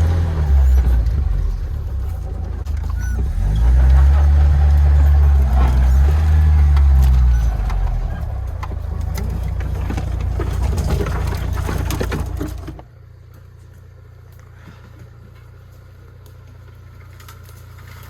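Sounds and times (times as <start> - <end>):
knocks and rattles: 0.0 - 13.0
car engine running under load: 0.0 - 18.0.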